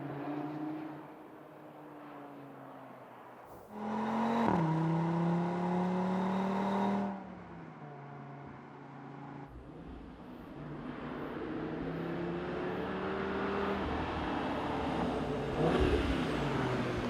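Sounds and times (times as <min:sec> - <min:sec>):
car engine accelerating: 0:03.7 - 0:17.0.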